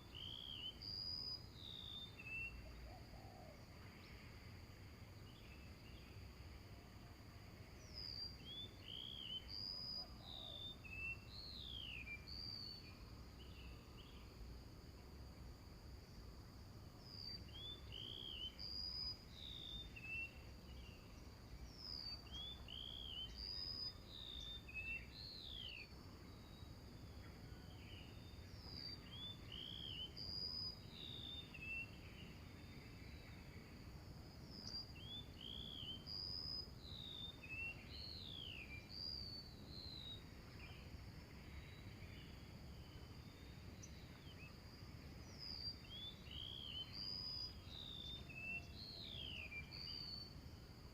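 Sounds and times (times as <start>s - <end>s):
small birds chirping: 17.0s - 33.9s, 34.5s - 50.4s.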